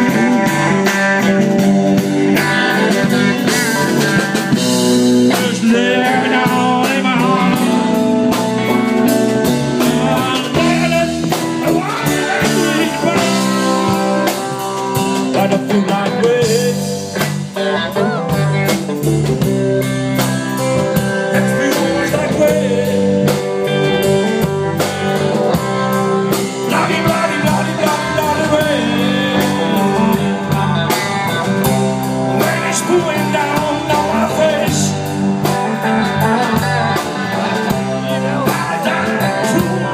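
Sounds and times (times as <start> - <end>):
blues-rock band playing: 0.0 - 39.9
guitar bending notes: 0.0 - 39.9.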